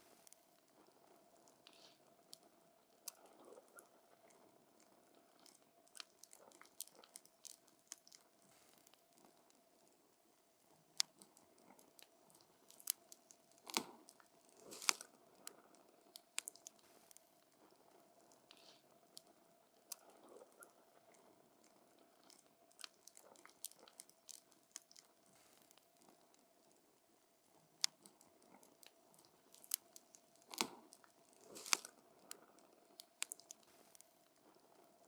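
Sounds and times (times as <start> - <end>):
wood fire crackling and popping: 14.6 - 15.0, 29.3 - 31.9.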